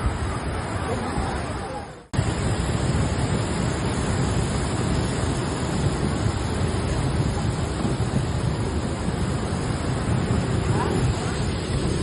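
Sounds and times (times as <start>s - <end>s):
fast-flowing river rushing: 0.0s - 12.0s
wind buffeting microphone: 0.0s - 12.0s.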